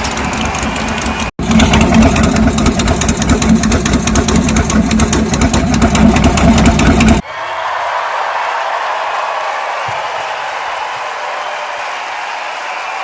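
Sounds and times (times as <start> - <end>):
car engine pulsing rumble: 0.0 - 7.2.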